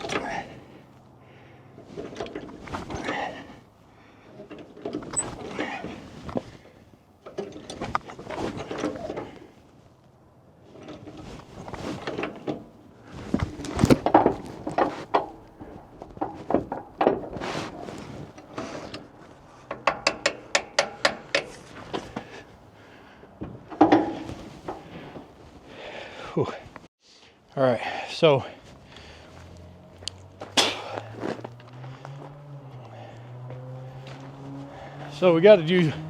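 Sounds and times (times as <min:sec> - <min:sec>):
mechanical knocks and clunks: 0:18.4 - 0:22.1, 0:23.4 - 0:25.4.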